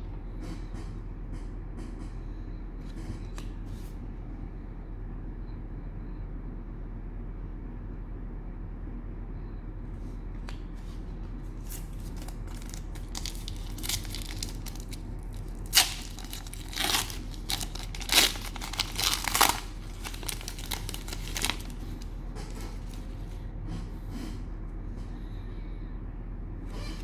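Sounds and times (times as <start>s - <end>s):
low steady hum: 0.0s - 27.0s
cellophane wrapper tearing and crinkling: 11.6s - 23.1s.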